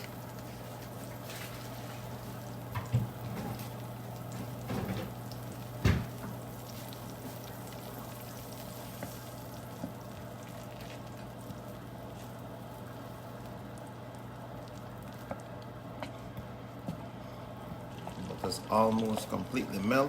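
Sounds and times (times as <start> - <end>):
butter sizzling in a pan: 0.0 - 15.9
steady low hum: 0.0 - 20.0.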